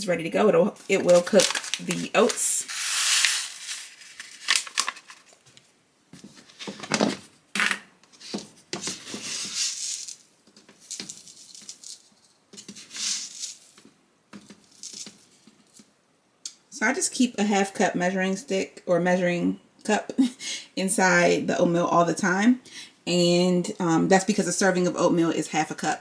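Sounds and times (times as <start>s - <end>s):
paper packet rustling and tearing: 0.8s - 5.5s, 8.2s - 13.9s.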